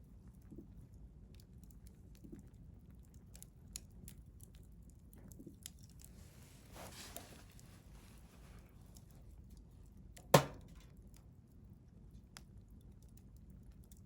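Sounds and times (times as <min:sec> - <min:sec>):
low steady fire rumble: 0:00.0 - 0:14.0.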